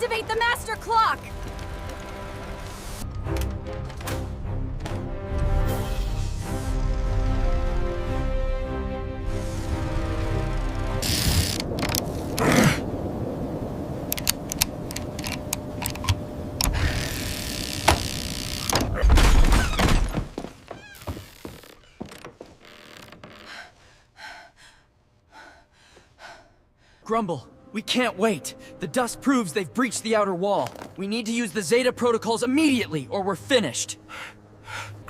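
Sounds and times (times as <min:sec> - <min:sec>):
knocks and thuds: 0:18.8 - 0:22.6.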